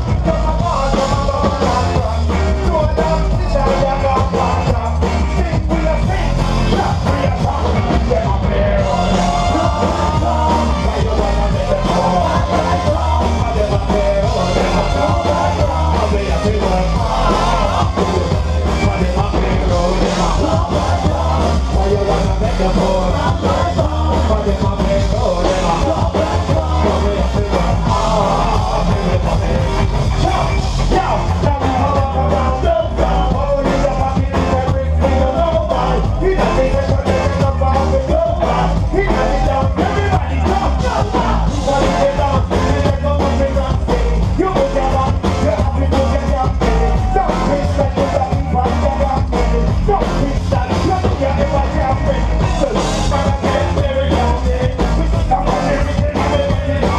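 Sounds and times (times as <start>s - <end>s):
live ska band music: 0.0s - 56.9s
person singing: 0.0s - 56.9s.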